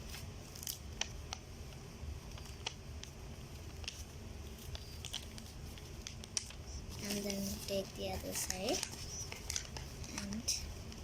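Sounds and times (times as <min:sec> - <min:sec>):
low background hum: 0:00.0 - 0:11.0
paper being folded and creased: 0:03.6 - 0:11.0.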